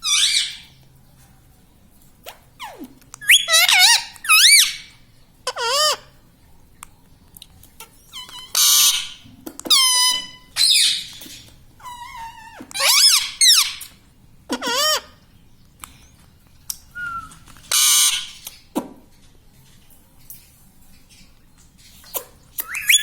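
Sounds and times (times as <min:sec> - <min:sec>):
parakeet squawking and whistling: 0:00.0 - 0:00.8, 0:02.6 - 0:04.9, 0:05.5 - 0:06.0, 0:08.0 - 0:13.9, 0:17.0 - 0:18.6, 0:22.1 - 0:23.0.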